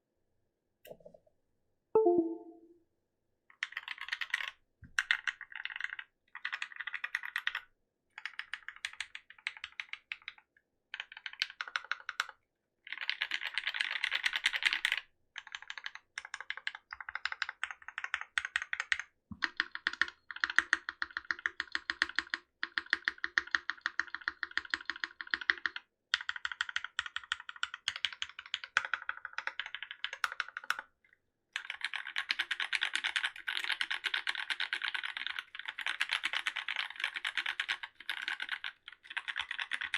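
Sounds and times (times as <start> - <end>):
mechanical keyboard typing: 3.7 - 7.6, 12.9 - 30.8, 31.6 - 39.9.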